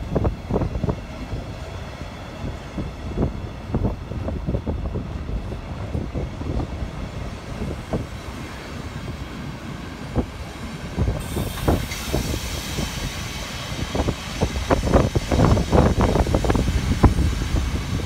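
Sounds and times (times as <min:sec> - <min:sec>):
high hiss: 0:11.1 - 0:17.7.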